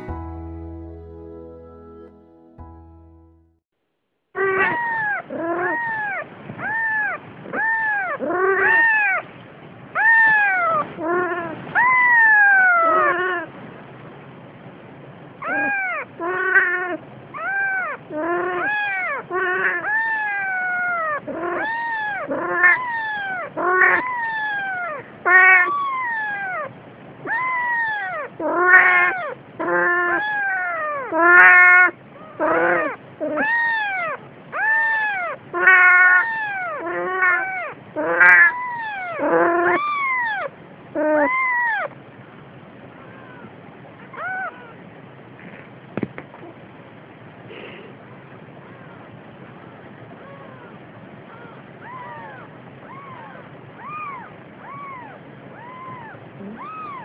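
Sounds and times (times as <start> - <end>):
cat meowing: 4.4 - 9.2, 10.0 - 13.5, 15.4 - 41.9, 44.1 - 44.8, 51.3 - 57.0.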